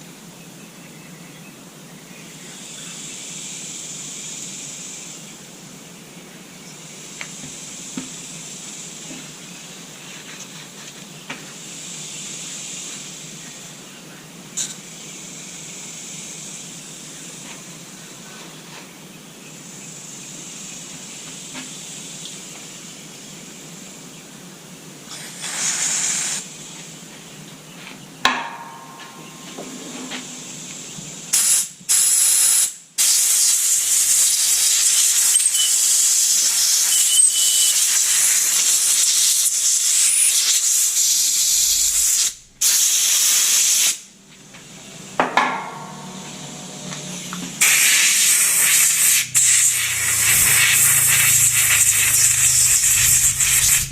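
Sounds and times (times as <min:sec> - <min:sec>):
loud pressurised hissing: 0:11.5 - 0:13.9, 0:14.8 - 0:18.2, 0:25.0 - 0:26.8, 0:30.3 - 0:44.2, 0:47.6 - 0:53.9.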